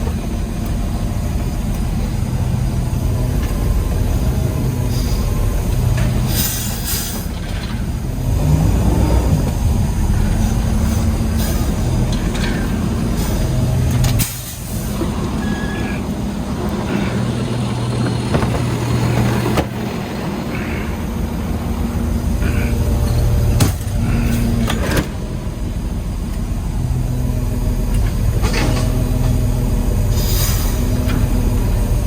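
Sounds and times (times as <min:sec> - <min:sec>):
diesel truck engine running: 0:00.0 - 0:32.0
clunks: 0:10.3 - 0:21.0, 0:22.4 - 0:26.5.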